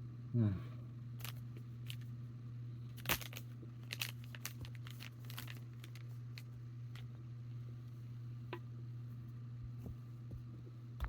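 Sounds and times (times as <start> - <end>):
steady low hum: 0.0 - 11.0
snack bag crinkling: 1.2 - 2.1, 3.0 - 7.1.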